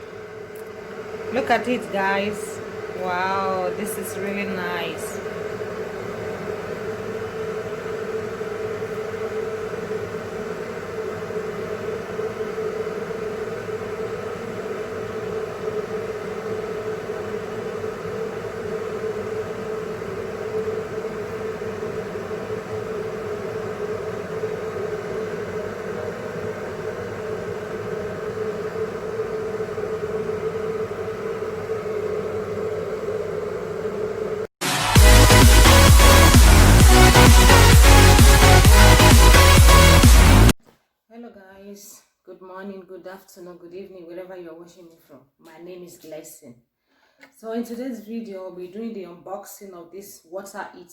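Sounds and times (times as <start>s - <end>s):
steady machine hum: 0.0s - 40.6s.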